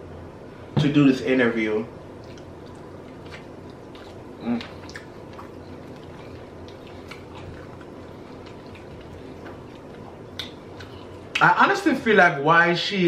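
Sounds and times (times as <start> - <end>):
quiet chewing: 2.2 - 11.4.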